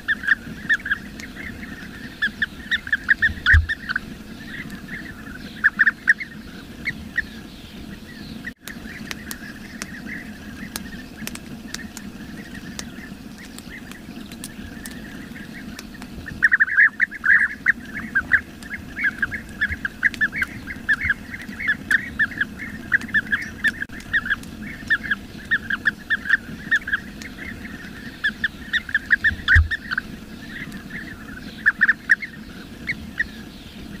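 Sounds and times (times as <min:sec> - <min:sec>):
birds chattering calls: 0:00.0 - 0:34.0.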